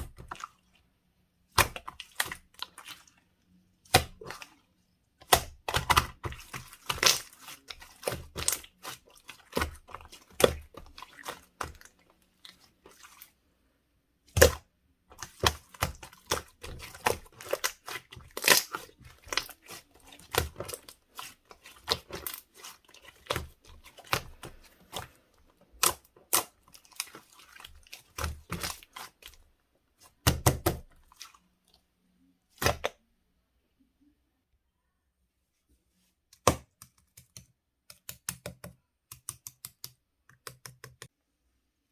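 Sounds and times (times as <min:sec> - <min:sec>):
slime squishing with sticky pops: 0:03.8 - 0:04.6, 0:05.2 - 0:13.3, 0:14.3 - 0:29.4.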